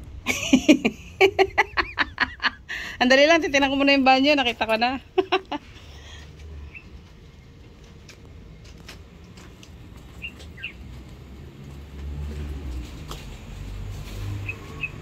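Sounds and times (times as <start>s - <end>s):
low rumble: 0.0s - 10.2s
high bird chirps: 6.7s - 6.9s, 10.2s - 10.8s, 14.4s - 15.0s.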